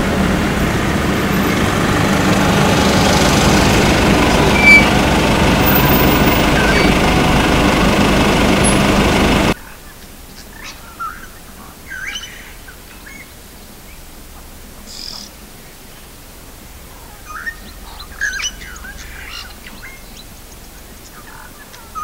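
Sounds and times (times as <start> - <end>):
birds chirping and whistling: 1.3 - 7.9, 11.9 - 13.3, 17.3 - 22.0.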